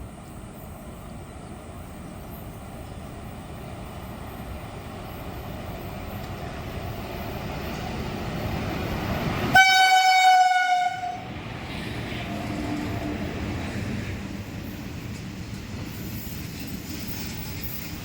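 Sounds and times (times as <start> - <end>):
train rumbling: 0.0 - 18.0
locomotive horn blast: 9.5 - 11.3.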